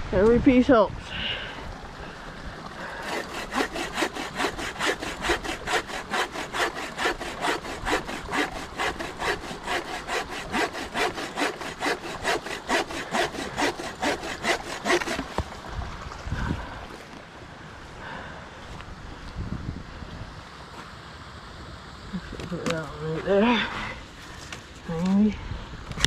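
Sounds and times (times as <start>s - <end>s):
hand saw cutting wood: 2.8s - 15.5s.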